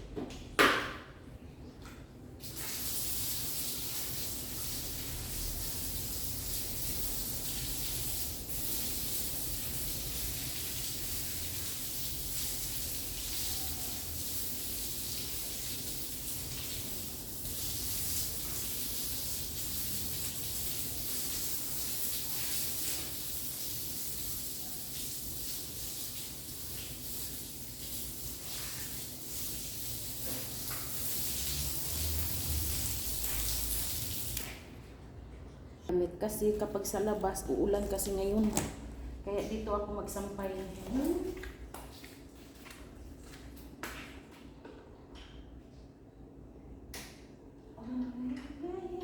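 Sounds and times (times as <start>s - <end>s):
running water: 2.4s - 34.8s.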